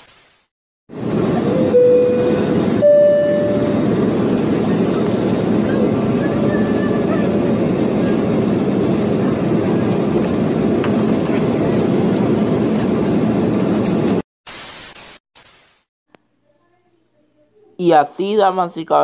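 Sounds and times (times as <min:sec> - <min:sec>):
bursts of hiss: 0:14.5 - 0:15.9.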